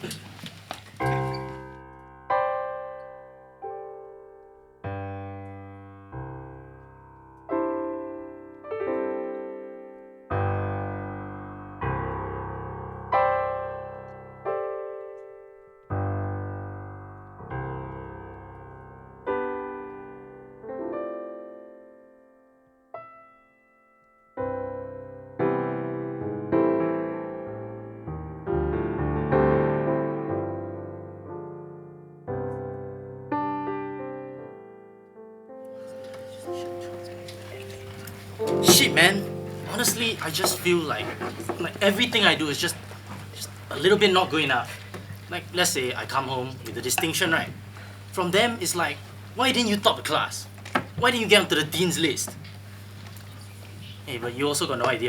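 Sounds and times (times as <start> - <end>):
slow piano chords: 0.0 - 55.0.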